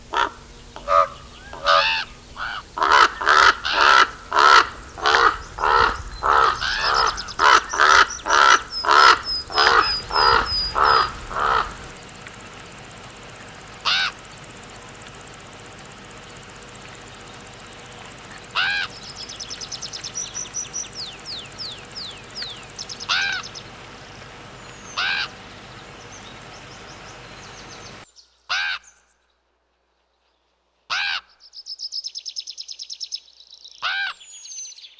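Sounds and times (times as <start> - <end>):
raven cawing: 0.0 - 23.5, 24.9 - 25.4, 30.9 - 31.4
small bird chirping: 0.4 - 23.7, 31.5 - 34.9.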